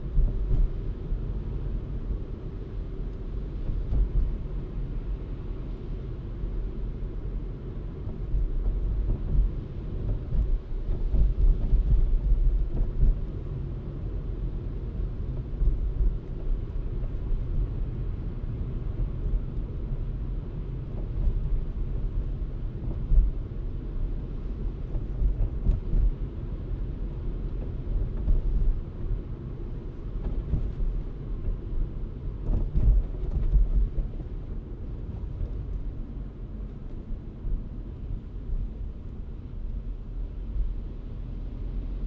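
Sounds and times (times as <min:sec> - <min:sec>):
car driving rumble: 0:00.0 - 0:42.0.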